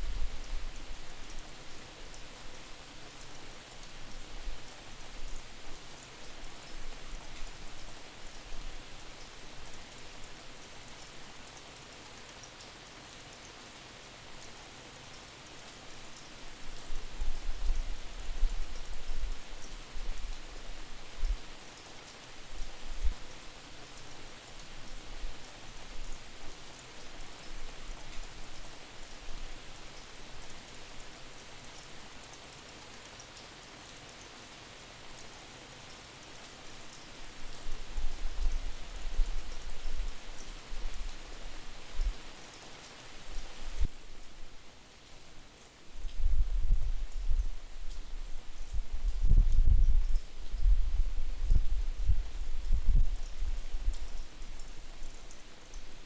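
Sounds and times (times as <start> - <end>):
steady rain falling: 0.0 - 56.0
wind buffeting microphone: 46.2 - 54.2.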